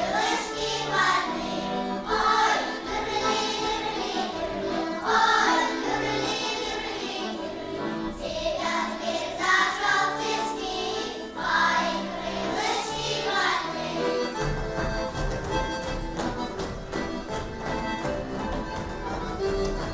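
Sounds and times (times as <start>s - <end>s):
voices singing with accompaniment: 0.0s - 15.1s.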